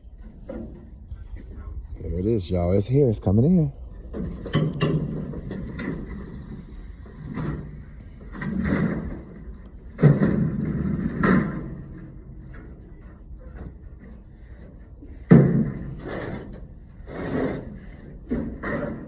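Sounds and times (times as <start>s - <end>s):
knocks and clunks: 4.0s - 14.3s, 15.1s - 16.8s.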